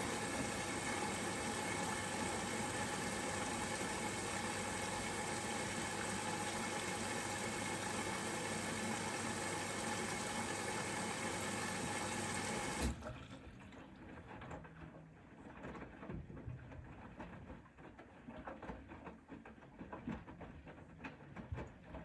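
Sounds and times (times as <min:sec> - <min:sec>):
washing machine water rushing: 0:00.0 - 0:13.8.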